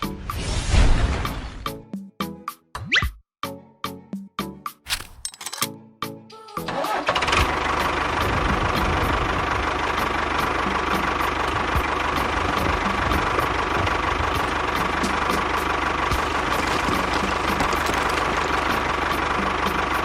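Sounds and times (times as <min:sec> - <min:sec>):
small engine idling with knocking: 0:07.2 - 0:20.0.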